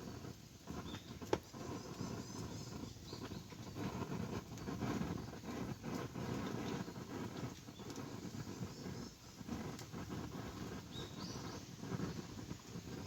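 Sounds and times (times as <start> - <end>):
campfire flames crackling: 0.0 - 13.0.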